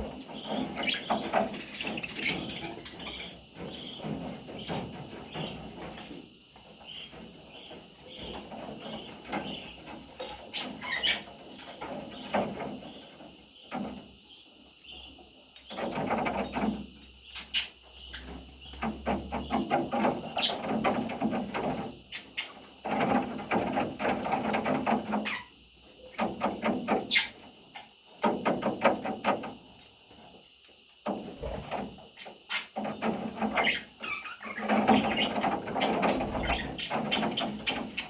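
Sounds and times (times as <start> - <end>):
budgerigar chicks chirping: 0.4 - 5.6, 10.4 - 11.3, 17.2 - 20.6, 33.5 - 38.0.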